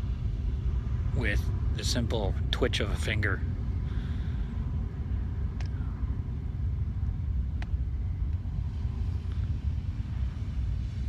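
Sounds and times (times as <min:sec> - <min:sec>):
low background rumble: 0:00.0 - 0:11.0
faint click: 0:05.6 - 0:05.8, 0:07.6 - 0:08.4.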